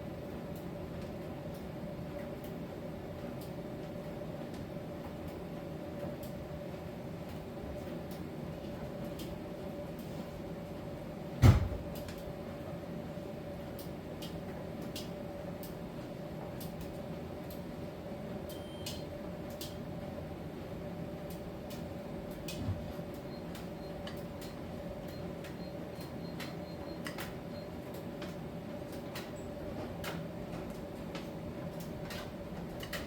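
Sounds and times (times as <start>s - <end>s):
loud thump: 11.4s - 11.8s.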